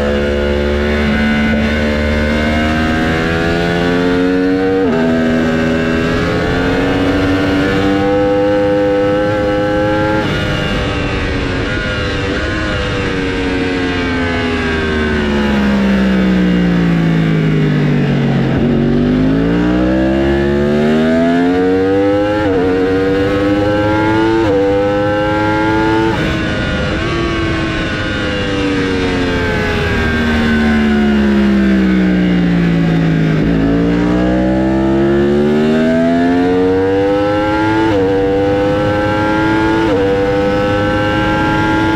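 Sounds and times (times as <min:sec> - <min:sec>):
race motorcycle engines revving: 0:00.0 - 0:41.9.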